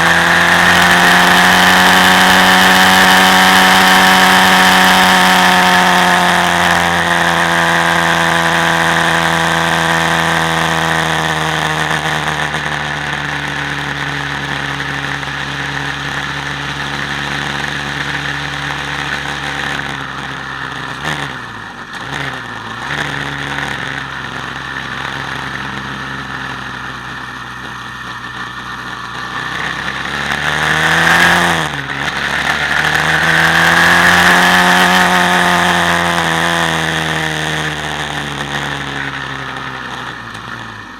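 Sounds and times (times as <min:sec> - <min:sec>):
quad bike engine revving: 0:00.0 - 0:40.9.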